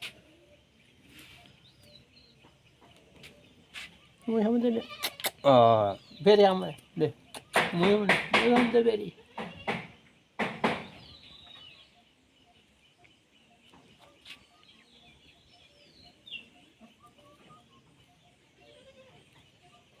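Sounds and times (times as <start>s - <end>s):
faint bird chirps: 0.0s - 8.0s, 9.0s - 20.0s.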